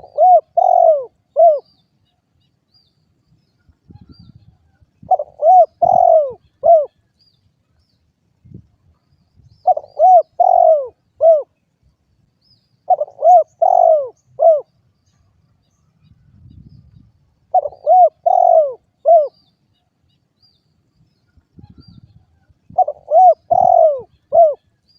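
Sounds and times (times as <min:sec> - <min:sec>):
dove cooing: 0:00.0 - 0:01.7, 0:05.0 - 0:07.0, 0:09.6 - 0:11.6, 0:12.9 - 0:14.7, 0:17.5 - 0:19.4, 0:22.7 - 0:24.7.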